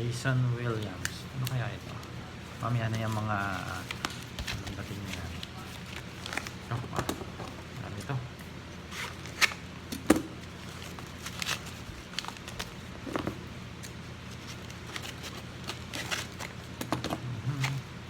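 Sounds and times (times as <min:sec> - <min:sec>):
packaging rustling and crinkling: 0:02.6 - 0:07.2, 0:10.4 - 0:17.8.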